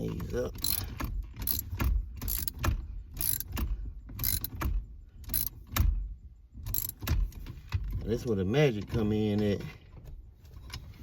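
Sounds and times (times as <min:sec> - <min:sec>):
socket ratchet clicking: 0:00.6 - 0:03.6, 0:04.2 - 0:05.5, 0:06.7 - 0:07.1.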